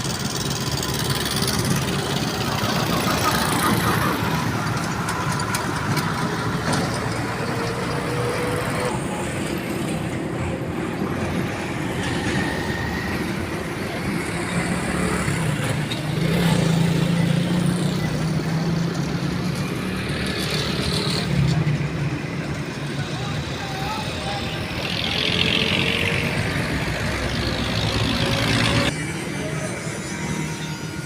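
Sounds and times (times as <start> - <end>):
truck engine running: 0.0 - 8.0
road traffic noise: 0.0 - 31.0.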